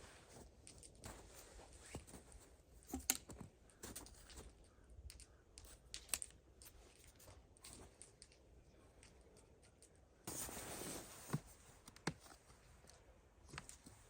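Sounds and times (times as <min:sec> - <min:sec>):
handling clicks and taps: 0:11.3 - 0:14.0.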